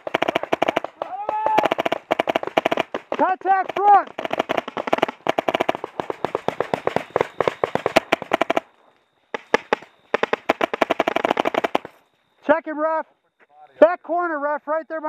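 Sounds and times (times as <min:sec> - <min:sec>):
paintball markers firing: 0:00.0 - 0:08.7, 0:09.3 - 0:12.0.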